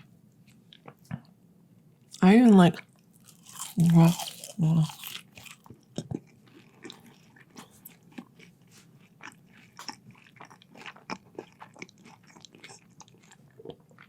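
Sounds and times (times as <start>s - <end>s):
chewing fries: 2.8s - 14.0s.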